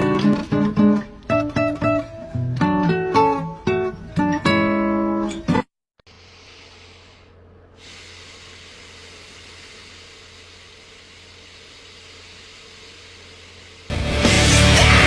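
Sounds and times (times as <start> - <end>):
strummed acoustic guitar: 0.0 - 5.7, 13.9 - 15.0
steady hiss: 6.1 - 13.9.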